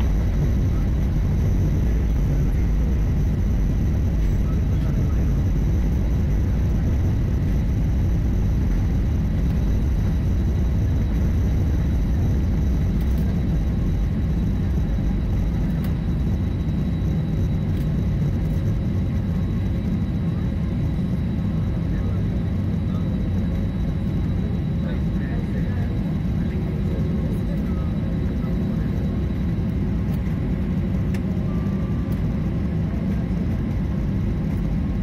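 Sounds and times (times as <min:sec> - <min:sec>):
airliner engines rumbling in cabin: 0:00.0 - 0:35.0
faint high whine: 0:00.0 - 0:35.0.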